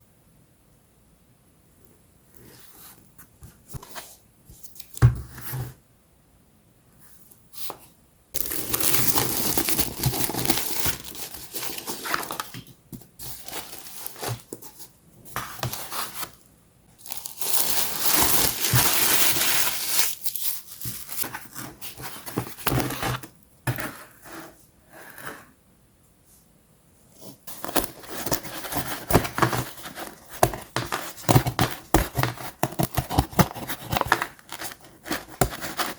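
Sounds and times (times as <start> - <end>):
packaging tearing and crinkling: 8.4 - 14.8, 17.0 - 23.3, 27.5 - 35.9.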